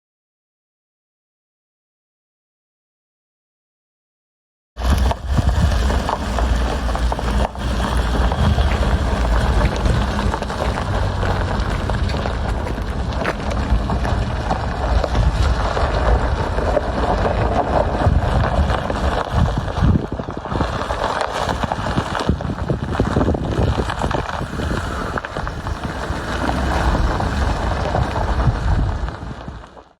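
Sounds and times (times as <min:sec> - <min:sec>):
pickup engine humming: 0:04.9 - 0:16.0, 0:21.1 - 0:28.5.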